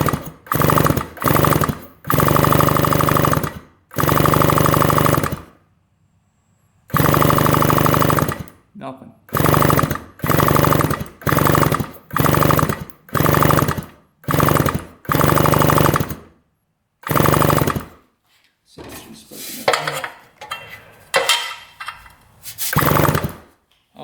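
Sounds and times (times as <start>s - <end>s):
motorcycle starter cranking: 0.0s - 5.6s, 6.9s - 8.6s, 9.3s - 16.4s, 17.0s - 18.0s, 19.8s - 23.5s.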